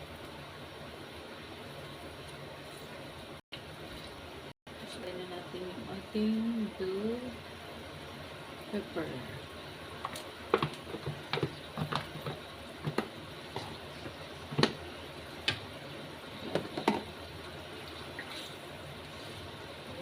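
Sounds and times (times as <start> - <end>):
sauce bubbling: 9.3 - 19.5.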